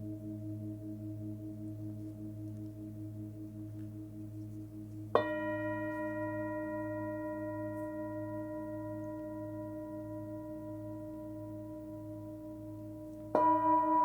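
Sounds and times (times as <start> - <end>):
singing bowl ringing: 5.2 - 14.0.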